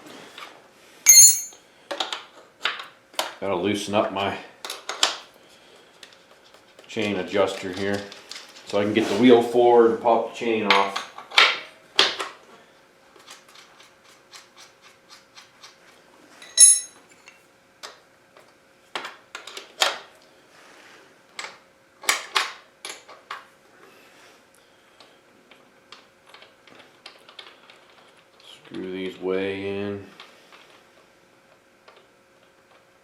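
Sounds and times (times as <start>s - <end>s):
short metallic ring: 1.1s - 1.6s, 16.4s - 17.0s.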